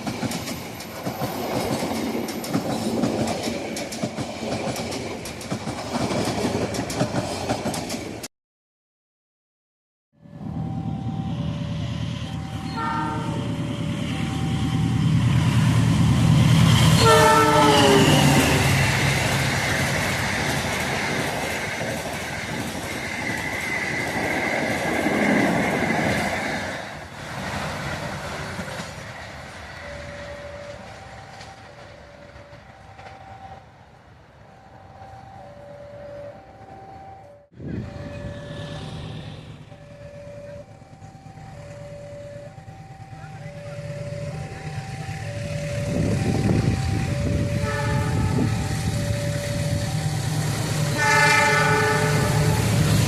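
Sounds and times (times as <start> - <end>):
train rumbling past: 0.0 - 8.3, 10.2 - 53.0
level crossing warning tones: 10.2 - 22.1, 28.7 - 33.8, 34.4 - 53.0
train horn blast: 12.6 - 13.6, 16.9 - 18.8, 47.3 - 48.6, 50.8 - 52.9.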